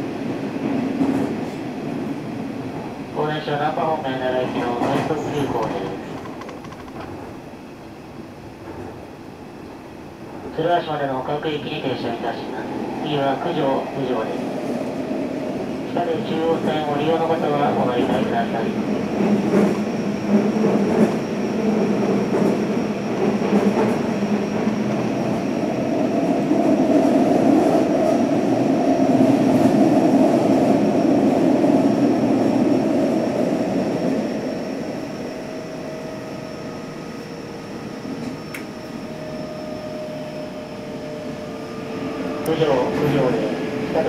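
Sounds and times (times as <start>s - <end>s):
train wheels rumbling on rails: 0.0s - 10.7s, 13.8s - 44.0s
sharp clicks: 5.6s - 7.2s
faint high whine: 34.2s - 43.4s.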